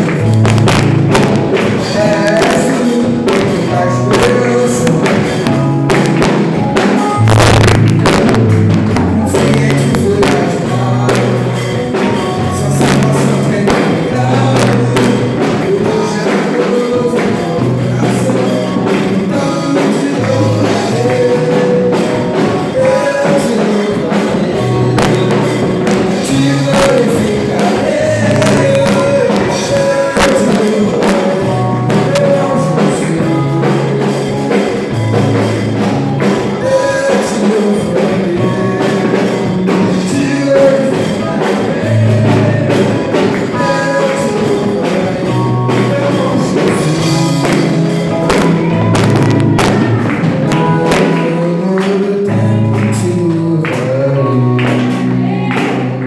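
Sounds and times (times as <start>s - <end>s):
gospel band singing: 0.0s - 56.0s
tambourine keeping the beat: 0.0s - 56.0s.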